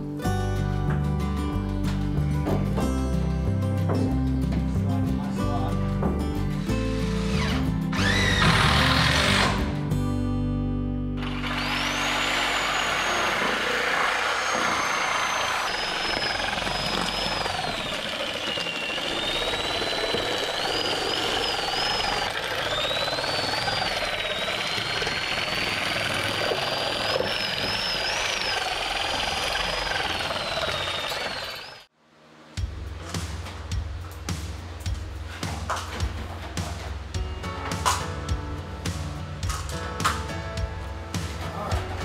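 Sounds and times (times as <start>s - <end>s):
electric shear motor whine: 7.1s - 9.7s, 11.2s - 31.9s
blades rasping through metal: 11.2s - 31.9s.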